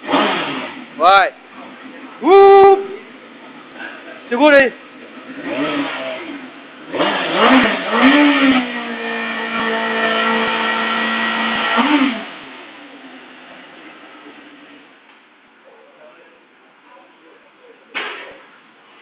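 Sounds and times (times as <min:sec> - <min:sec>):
motorcycle engine revving: 0:00.0 - 0:03.8, 0:04.7 - 0:14.9.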